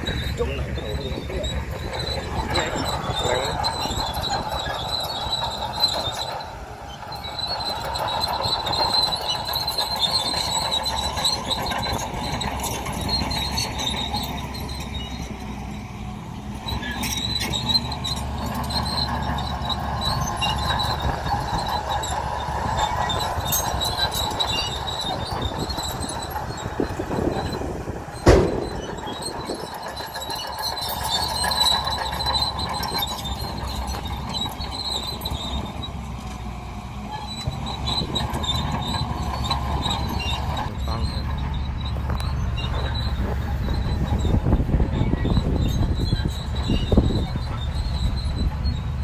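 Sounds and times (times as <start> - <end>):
bulldozer diesel engine rumbling: 0.0 - 49.0
steel tracks squealing and clanking: 0.0 - 49.0
sharp bang: 28.2 - 29.0.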